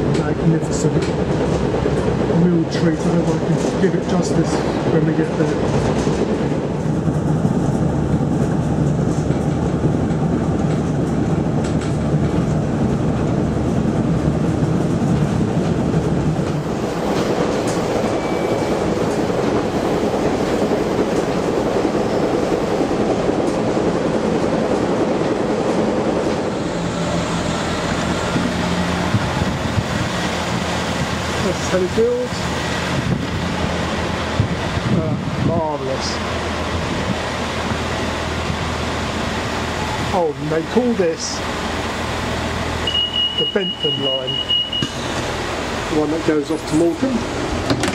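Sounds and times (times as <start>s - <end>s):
wheels clacking over rail joints: 0.0s - 42.6s, 44.8s - 47.9s
diesel engine rumble: 22.8s - 47.9s.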